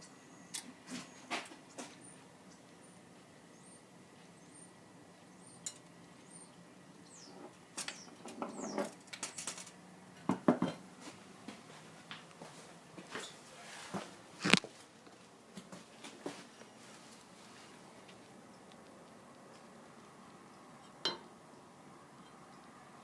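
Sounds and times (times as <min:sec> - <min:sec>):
faint high chirps: 0:00.0 - 0:08.8.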